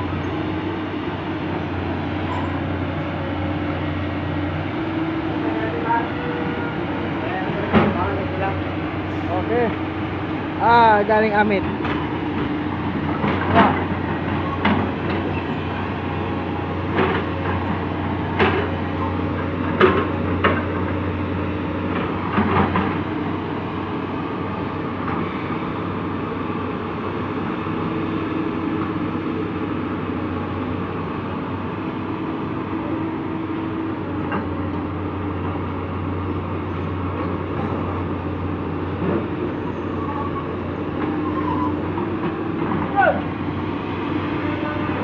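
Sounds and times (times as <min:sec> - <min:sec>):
excavator diesel engine running: 0:00.0 - 0:45.0.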